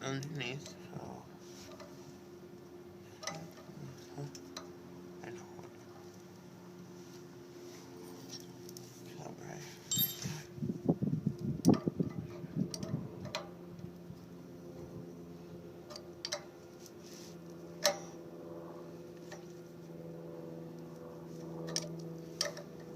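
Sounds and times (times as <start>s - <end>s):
steady low hum: 0.0s - 22.9s
knocks and handling noise: 9.9s - 10.4s.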